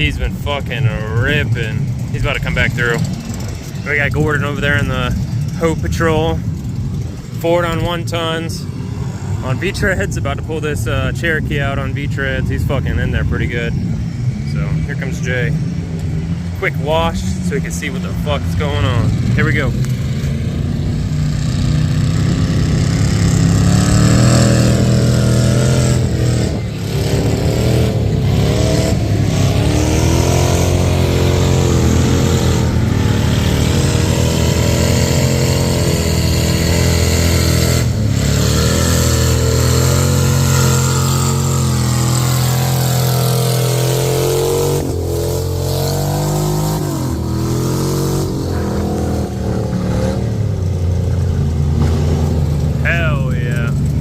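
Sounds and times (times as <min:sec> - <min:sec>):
truck engine revving hard: 0:16.6 - 0:54.0.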